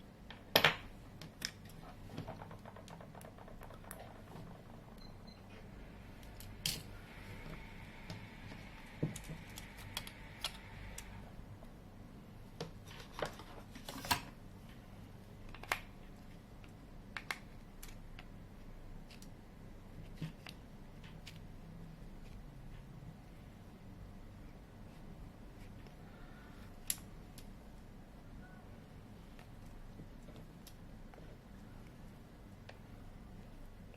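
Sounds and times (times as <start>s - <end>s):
faint high tone: 28.4s - 28.8s.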